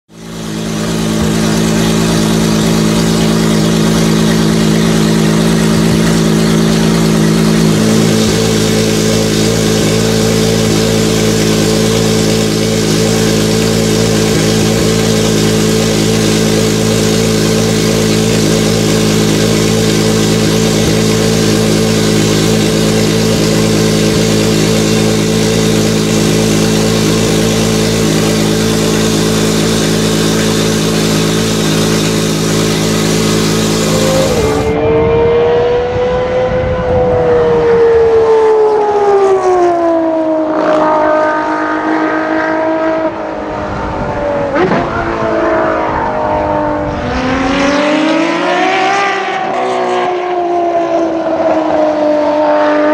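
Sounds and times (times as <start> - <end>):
car engine idling: 0.1 - 34.8.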